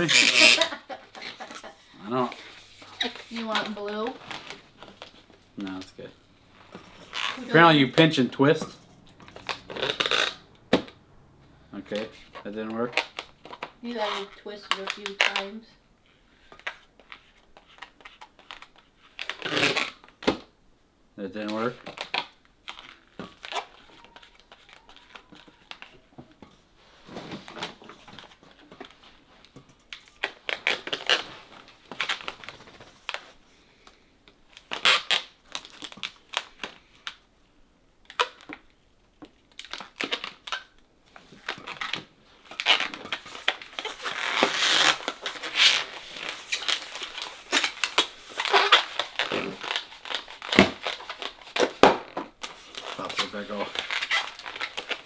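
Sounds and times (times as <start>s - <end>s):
balloons squeaking and rubbing: 0.0s - 15.6s, 17.2s - 20.2s, 22.7s - 26.1s, 30.2s - 33.2s, 34.6s - 35.8s, 39.9s - 55.0s.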